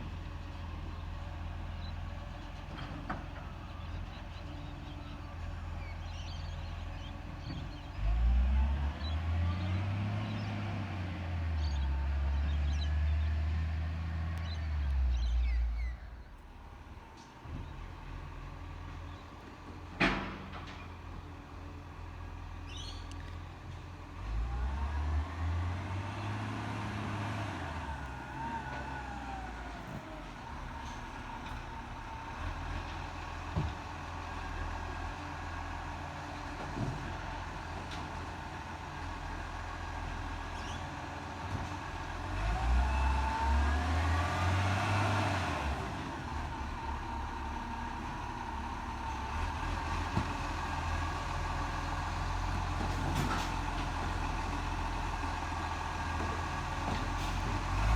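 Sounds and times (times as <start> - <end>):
garbage truck engine revving: 7.9 - 15.8, 24.2 - 32.8, 41.9 - 57.9.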